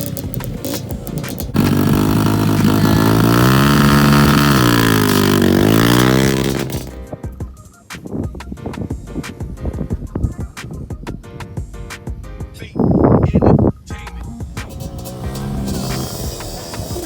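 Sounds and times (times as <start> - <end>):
dirt bike engine revving: 0.0 - 7.0, 14.4 - 17.0.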